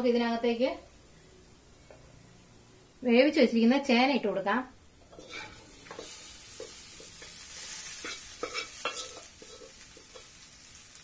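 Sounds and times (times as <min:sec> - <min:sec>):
food sizzling in a pan: 0:05.0 - 0:11.0
spatula scraping and knocking pan: 0:05.1 - 0:10.5.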